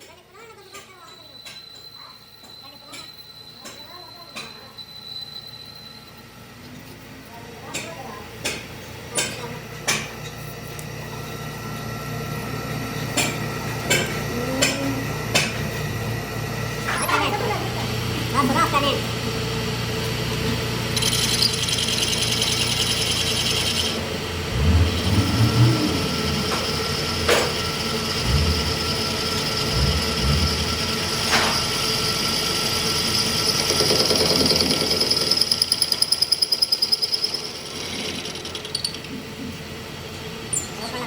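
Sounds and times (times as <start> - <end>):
power tools running: 8.3 - 41.0.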